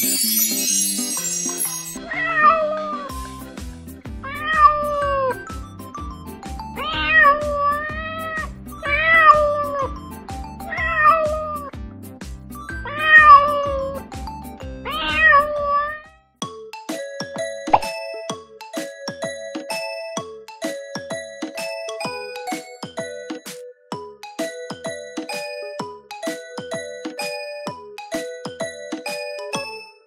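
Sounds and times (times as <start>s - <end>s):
cat meowing: 2.1s - 3.2s, 4.2s - 5.4s, 6.8s - 9.9s, 10.7s - 11.7s, 12.8s - 14.0s, 14.8s - 16.1s
background music with steady beat: 3.1s - 30.0s.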